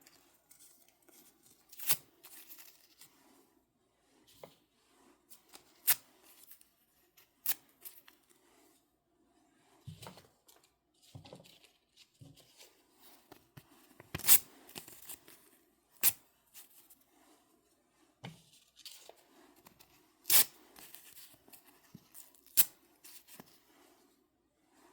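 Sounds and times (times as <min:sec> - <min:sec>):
paper rustling: 0:10.1 - 0:15.4.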